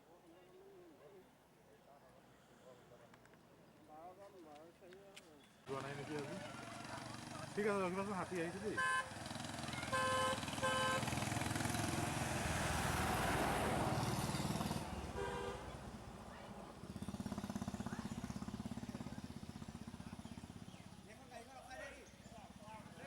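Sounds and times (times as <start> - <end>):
vehicle passing close by: 5.7 - 20.6
engine throbbing: 5.7 - 21.2
vehicle horn tooting: 8.5 - 12.3, 14.0 - 16.0.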